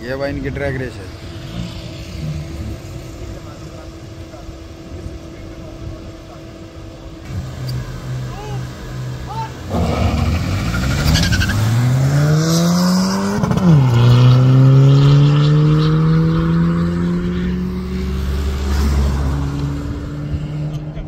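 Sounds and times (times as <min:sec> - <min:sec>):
car engine accelerating hard: 0:07.2 - 0:21.0.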